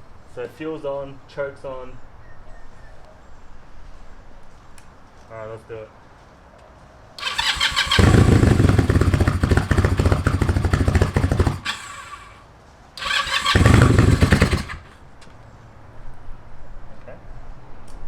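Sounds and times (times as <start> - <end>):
motorcycle starter cranking: 7.2 - 12.4, 13.0 - 15.0
starter whir: 7.2 - 12.4, 13.0 - 15.0.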